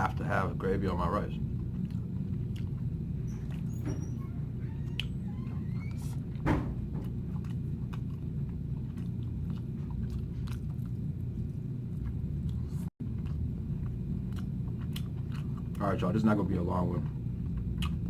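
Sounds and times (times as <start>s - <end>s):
steady low hum: 0.0s - 18.0s
person chewing food: 1.4s - 3.7s, 7.0s - 15.8s, 17.0s - 18.0s.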